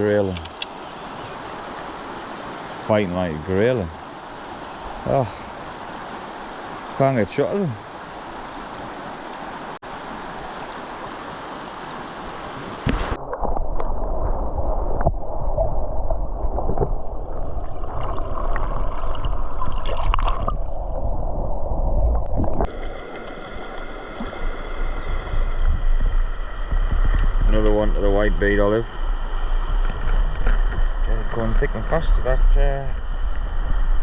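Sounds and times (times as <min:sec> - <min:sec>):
river water gurgling: 0:00.0 - 0:32.4
knocks and splashes: 0:12.6 - 0:20.6
heavy low rumble: 0:24.4 - 0:34.0.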